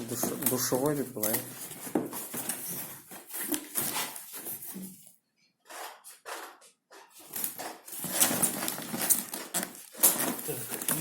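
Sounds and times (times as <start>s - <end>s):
packaging rustling: 0.0s - 4.9s, 7.1s - 11.0s.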